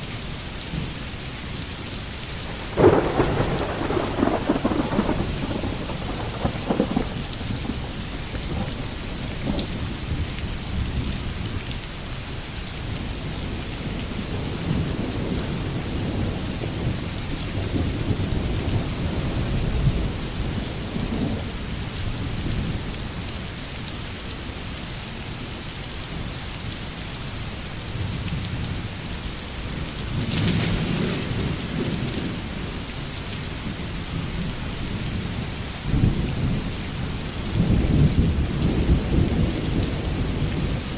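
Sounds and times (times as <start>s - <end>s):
steady rain falling: 0.0s - 40.9s
distant thunder rumbling: 2.5s - 9.7s, 30.2s - 32.8s.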